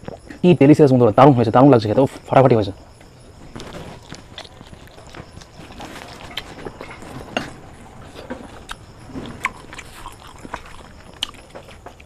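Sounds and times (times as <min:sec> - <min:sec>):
mouth chewing chicken: 0:03.5 - 0:12.0.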